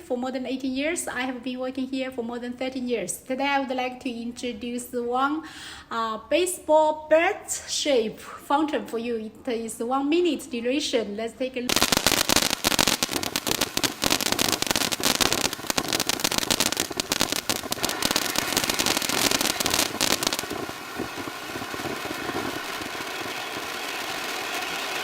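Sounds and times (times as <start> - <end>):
firework crackling: 11.7 - 25.0
firework sparks hissing: 11.7 - 25.0.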